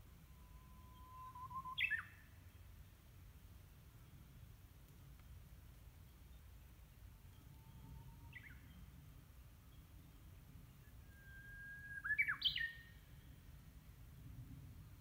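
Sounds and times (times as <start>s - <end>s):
bird singing whistled notes: 0.2s - 2.9s, 7.3s - 9.0s, 9.6s - 13.4s.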